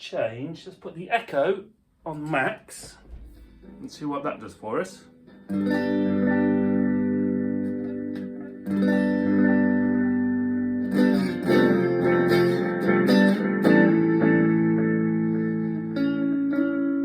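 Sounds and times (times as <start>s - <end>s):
electric guitar strumming with echo: 5.0s - 17.0s.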